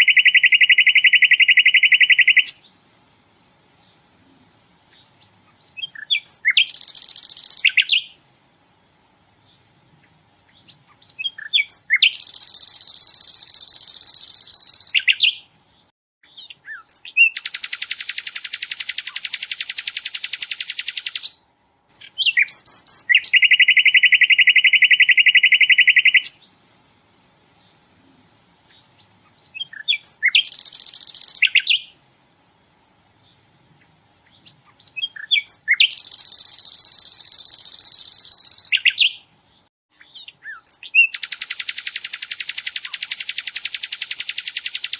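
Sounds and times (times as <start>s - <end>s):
bird fast trilling song: 0.0s - 2.7s, 4.9s - 8.2s, 10.5s - 15.5s, 16.2s - 26.5s, 28.7s - 32.0s, 34.2s - 39.3s, 39.9s - 44.9s.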